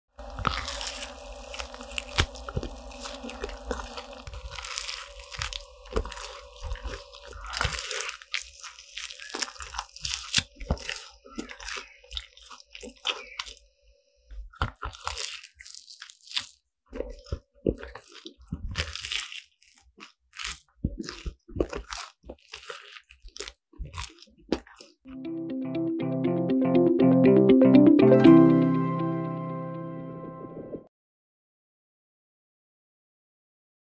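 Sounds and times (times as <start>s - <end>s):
crunchy food being chewed: 0.2s - 25.1s.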